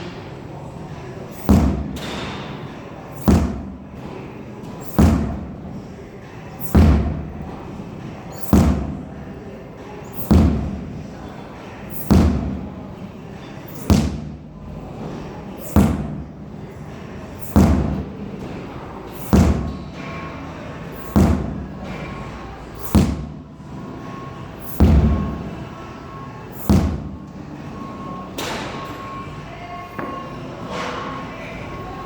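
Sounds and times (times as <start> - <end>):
sledgehammer thuds on tire: 1.3 - 2.6, 3.2 - 4.1, 4.8 - 5.6, 6.6 - 7.4, 8.3 - 9.1, 10.1 - 10.9, 11.9 - 12.7, 13.8 - 14.4, 15.6 - 16.3, 17.4 - 18.1, 19.1 - 20.1, 21.0 - 22.0, 22.8 - 23.4, 24.6 - 25.5, 26.6 - 27.2.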